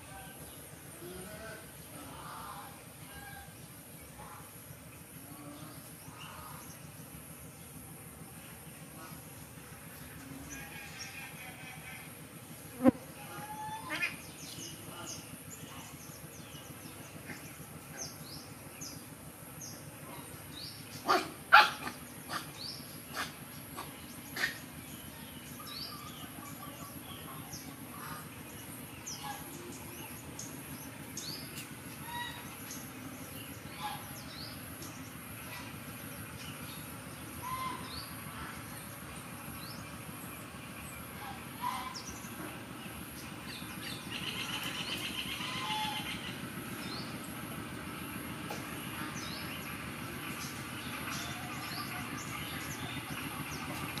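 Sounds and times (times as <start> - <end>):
small birds chirping: 12.8 - 54.0.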